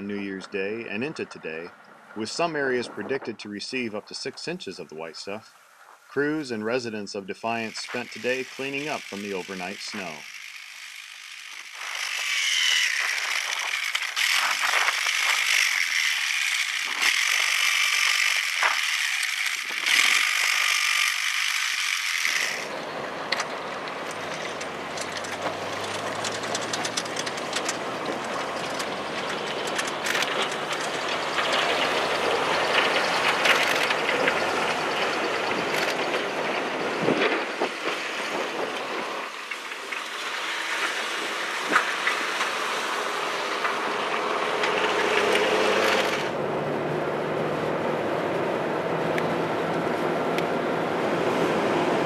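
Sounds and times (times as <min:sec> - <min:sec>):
high-pitched whining scrape: 0:07.4 - 0:22.9, 0:24.1 - 0:42.3
engine rumble with steady hum: 0:22.4 - 0:52.0.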